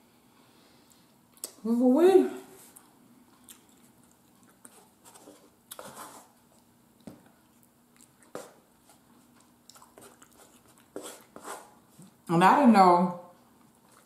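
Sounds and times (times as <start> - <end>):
soft mouth clicks and smacks: 1.3 - 1.6, 2.7 - 4.8, 9.3 - 10.9
person chewing and eating: 2.6 - 12.3, 13.5 - 14.0.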